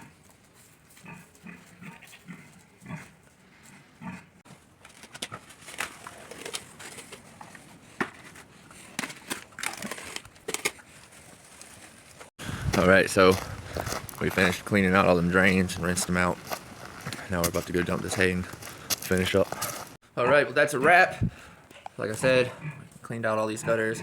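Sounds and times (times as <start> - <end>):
pig grunting: 22.0 - 24.0.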